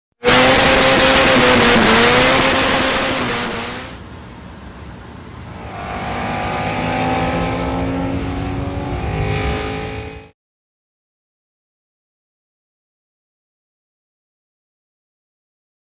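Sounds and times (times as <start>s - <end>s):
loud rushing noise: 0.2s - 4.0s
car engine running hard: 0.2s - 10.3s.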